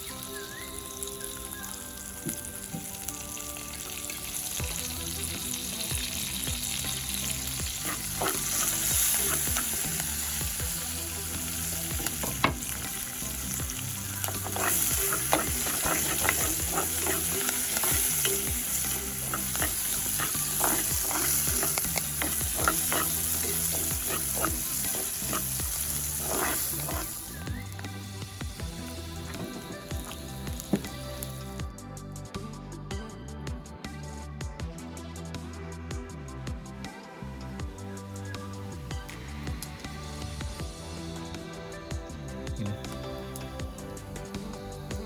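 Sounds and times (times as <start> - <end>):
food sizzling in a hot pan: 0.0 - 31.6
utensil scraping a pan: 7.7 - 10.4, 11.8 - 27.4.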